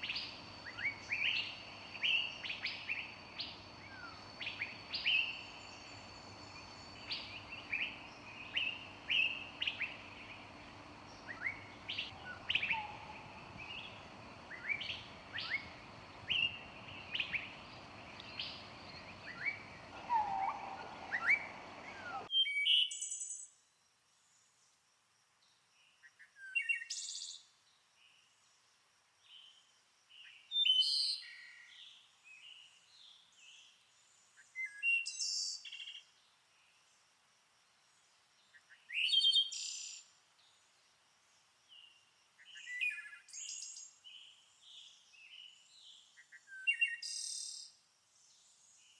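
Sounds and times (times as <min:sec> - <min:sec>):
birds singing and chirping: 0:00.0 - 0:22.3
steady background noise: 0:00.2 - 0:22.3.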